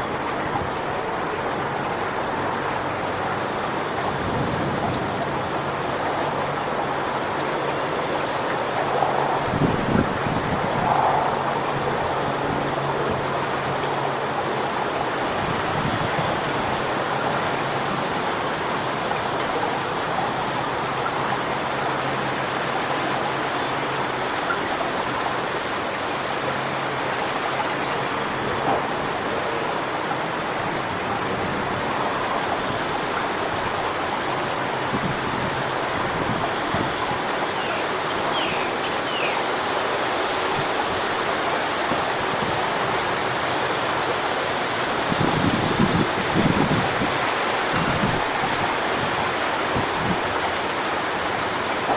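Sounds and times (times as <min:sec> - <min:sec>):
strong wind through palm fronds: 0:00.0 - 0:51.9.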